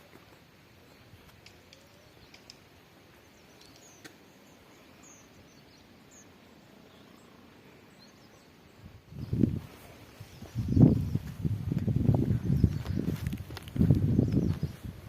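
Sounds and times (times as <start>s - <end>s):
faint clicks: 1.2s - 2.7s.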